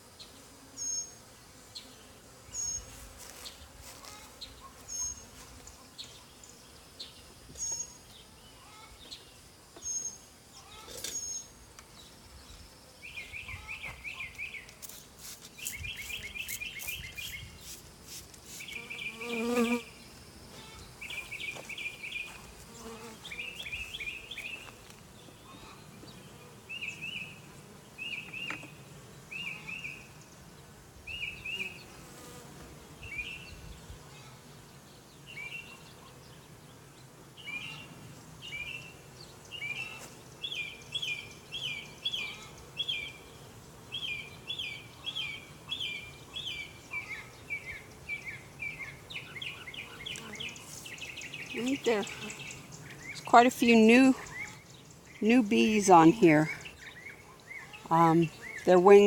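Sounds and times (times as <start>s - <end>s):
honeybees humming: 0.0s - 59.0s
bird chirping: 4.4s - 14.7s, 15.6s - 17.7s.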